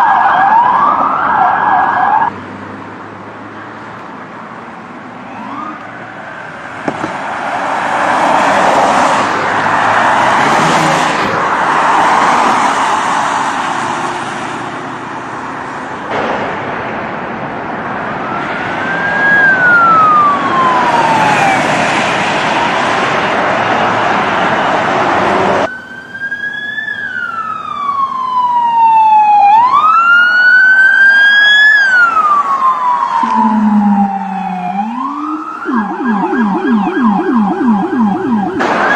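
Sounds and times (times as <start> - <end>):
police siren wailing: 0.0 - 2.3, 5.2 - 6.7, 17.9 - 38.9
road and wind rushing: 0.0 - 38.9.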